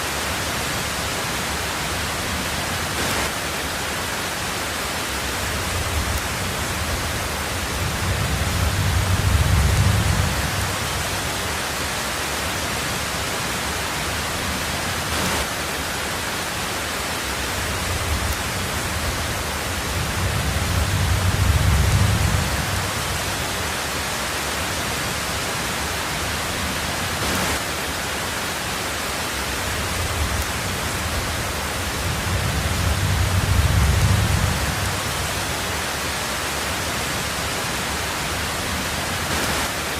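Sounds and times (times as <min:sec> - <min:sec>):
heavy rain on a tin roof: 0:00.0 - 0:39.9
thunder rumbling: 0:05.2 - 0:11.6, 0:17.4 - 0:23.7, 0:29.6 - 0:35.9.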